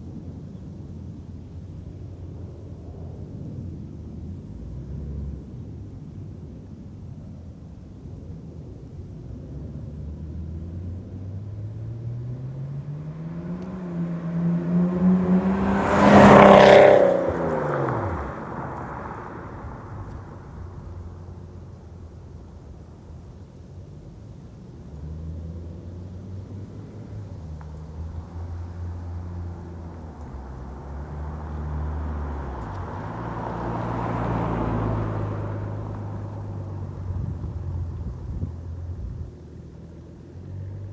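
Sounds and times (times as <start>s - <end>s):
car engine accelerating past: 9.6s - 22.2s, 24.8s - 40.9s.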